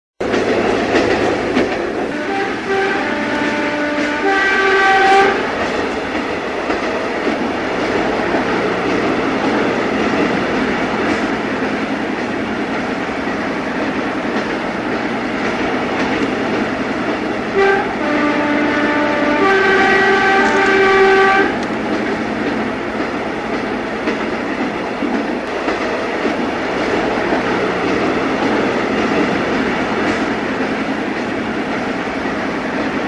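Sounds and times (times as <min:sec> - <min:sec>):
train rumbling: 0:00.2 - 0:33.0
train chord whistle blasts: 0:02.1 - 0:05.5, 0:17.6 - 0:21.6.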